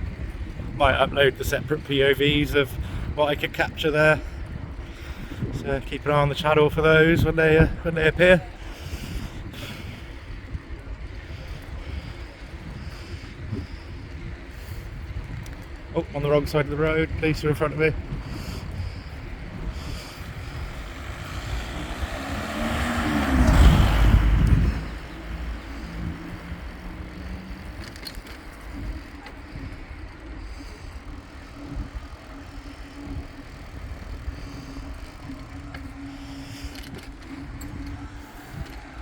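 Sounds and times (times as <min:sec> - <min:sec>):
road and wind noise: 0:00.0 - 0:39.0
motor vehicle passing: 0:17.9 - 0:39.0.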